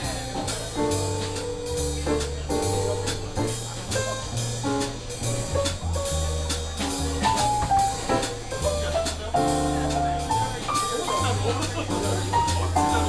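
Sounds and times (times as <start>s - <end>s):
drum kit keeping time: 0.0s - 13.0s
jazz band playing: 0.0s - 13.0s
walking bass line: 0.0s - 13.0s.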